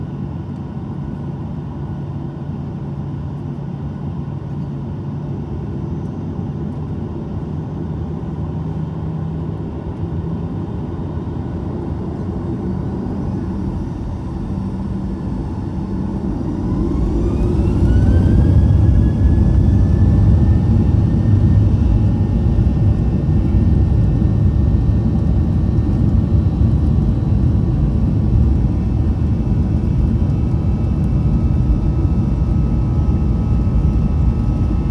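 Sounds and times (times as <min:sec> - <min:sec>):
cabin engine hum: 0:00.0 - 0:34.9
low engine rumble: 0:07.5 - 0:34.9
jet engines spooling up: 0:11.5 - 0:34.9.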